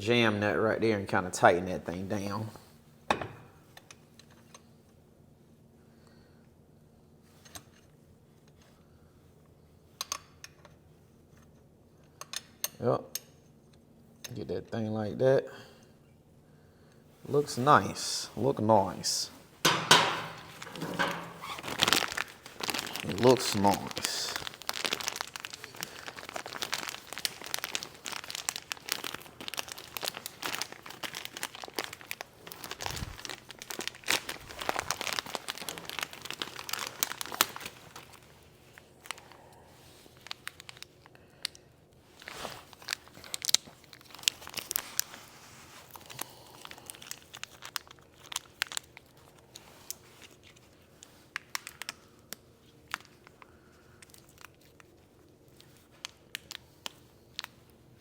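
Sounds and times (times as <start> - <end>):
rustling and clicking of tools: 18.4 - 28.0.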